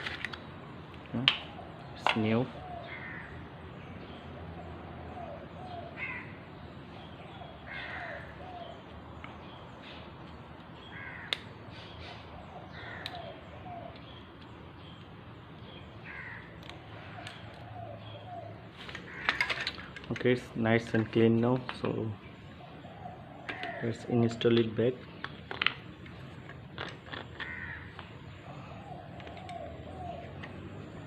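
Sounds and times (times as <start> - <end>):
birds cawing: 1.4 - 9.2, 10.8 - 14.2, 15.7 - 25.3, 27.1 - 31.0.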